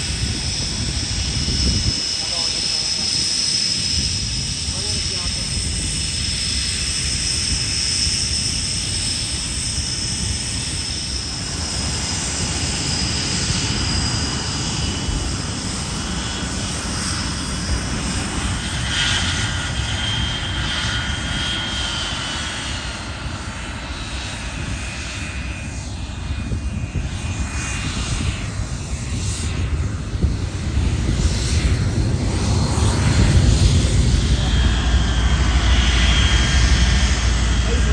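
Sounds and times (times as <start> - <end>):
airplane engine rumble: 0.0 - 37.9.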